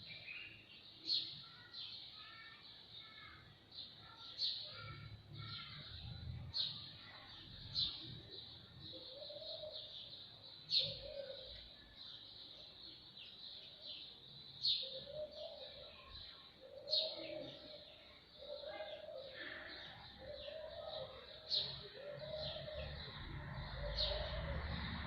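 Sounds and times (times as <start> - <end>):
birds chirping: 0.0 - 25.0
low bird cooing: 4.6 - 12.0, 14.6 - 25.0.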